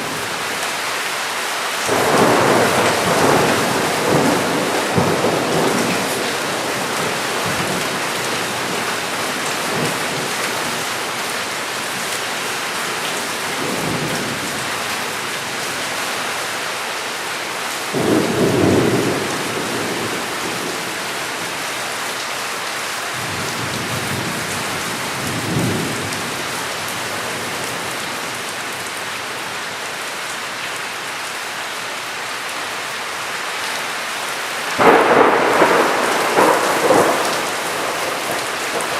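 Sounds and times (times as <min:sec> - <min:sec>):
heavy rain falling: 0:00.0 - 0:38.9
thunder rumbling: 0:01.9 - 0:10.8, 0:17.9 - 0:21.5, 0:34.8 - 0:38.9.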